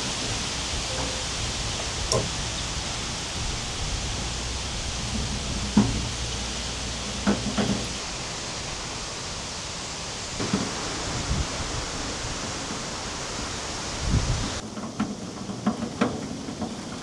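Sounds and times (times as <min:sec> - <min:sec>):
steady hiss: 0:00.0 - 0:17.0
short knocks: 0:00.2 - 0:08.0.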